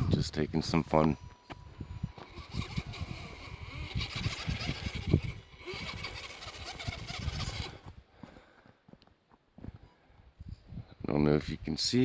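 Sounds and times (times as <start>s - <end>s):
truck engine under load: 2.1s - 7.8s.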